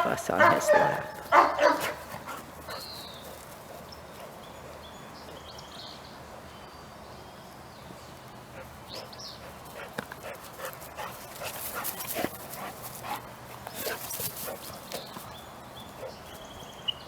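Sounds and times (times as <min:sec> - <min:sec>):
dog panting: 0:00.0 - 0:05.5, 0:08.5 - 0:15.3.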